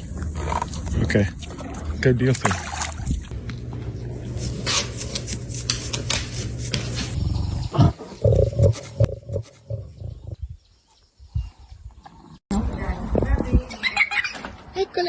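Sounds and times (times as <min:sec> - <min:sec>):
animal low rumble: 0:07.1 - 0:10.6.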